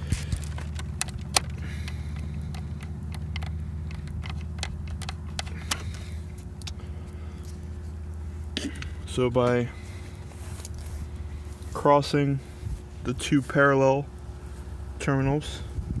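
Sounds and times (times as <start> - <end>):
low mechanical hum: 0.0 - 16.0
light clicks and taps: 0.2 - 6.8.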